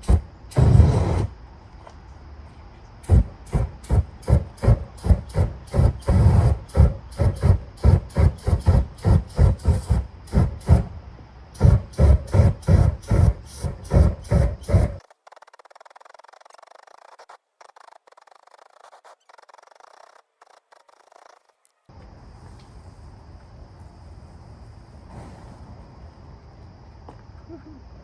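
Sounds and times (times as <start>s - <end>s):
crackling welding bursts: 0.0s - 1.4s, 3.0s - 11.0s, 11.6s - 21.6s.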